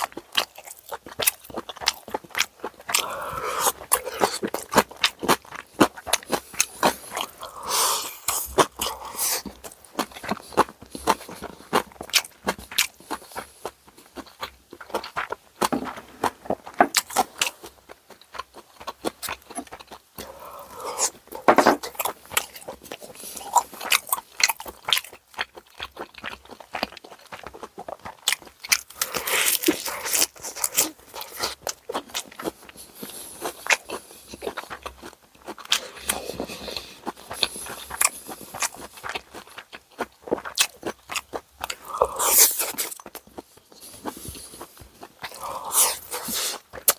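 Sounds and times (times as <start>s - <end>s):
wet chewing: 0.0s - 46.9s
crunchy bites: 14.2s - 32.6s, 33.4s - 46.9s.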